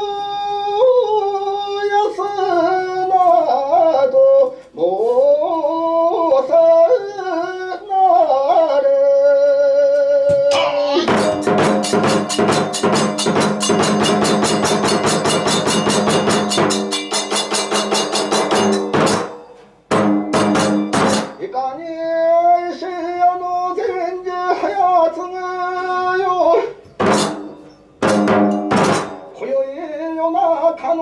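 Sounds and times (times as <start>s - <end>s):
wavering chanting voice: 0.0s - 12.7s, 29.4s - 31.0s
drum beat: 10.3s - 21.4s, 27.0s - 29.4s
held pitched tones: 10.4s - 12.9s
small hand cymbals: 10.7s - 19.9s.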